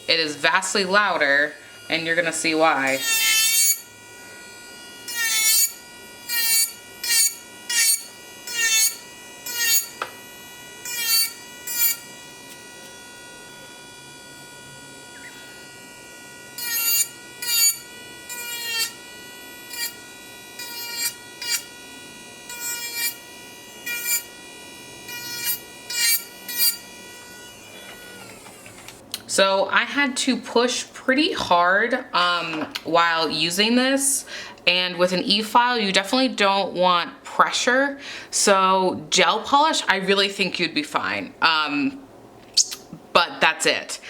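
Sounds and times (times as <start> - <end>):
electric nail drill whining: 0.0 - 29.0
drill bit grinding nail: 1.7 - 29.0.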